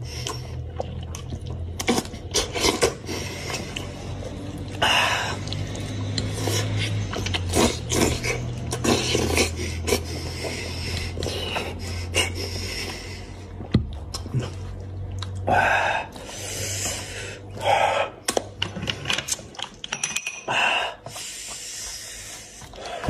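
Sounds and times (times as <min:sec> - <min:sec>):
person chewing wetly: 0:00.0 - 0:19.8, 0:20.9 - 0:23.0
lip smacks and mouth clicks: 0:05.4 - 0:12.4, 0:13.5 - 0:15.5, 0:18.2 - 0:19.9.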